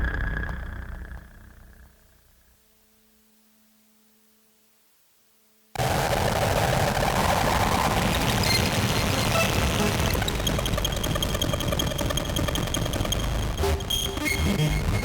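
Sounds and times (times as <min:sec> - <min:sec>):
synthesizer noise drone: 0:05.8 - 0:15.0
steady high synth tones: 0:08.4 - 0:15.0.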